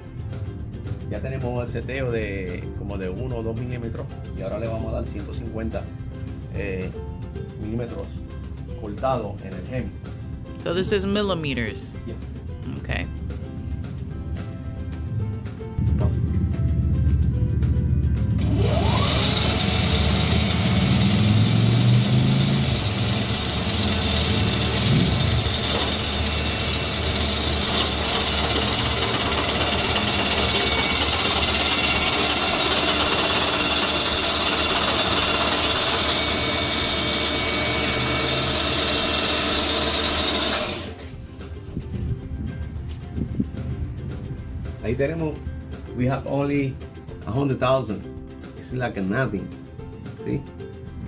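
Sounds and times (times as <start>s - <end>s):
metal-cutting machine machining: 18.4s - 41.0s.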